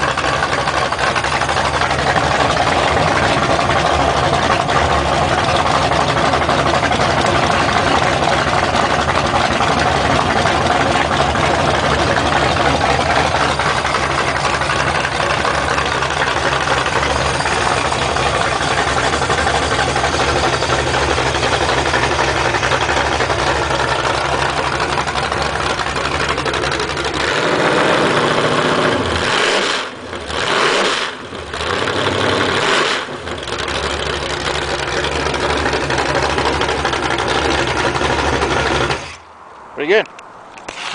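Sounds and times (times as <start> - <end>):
engine running and revving: 0.0 - 39.2.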